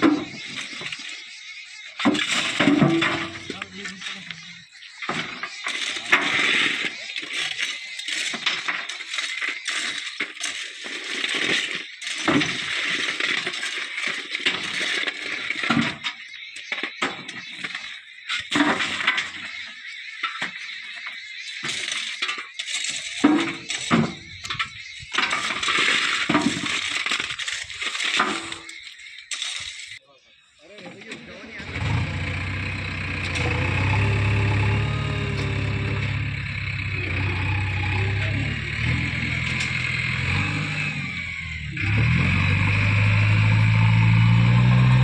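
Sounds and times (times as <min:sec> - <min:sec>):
stone clattering into truck: 0:02.1 - 0:03.7, 0:23.0 - 0:27.4.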